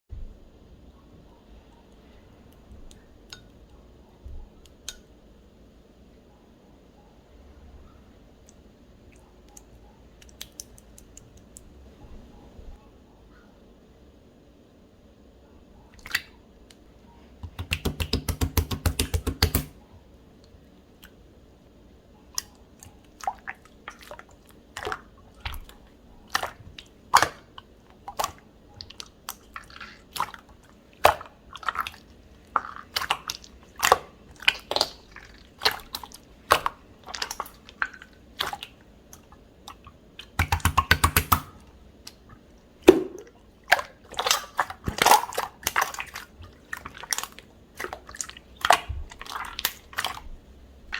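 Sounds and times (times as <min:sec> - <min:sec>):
air-bubble pops: 0:42.9 - 0:43.4.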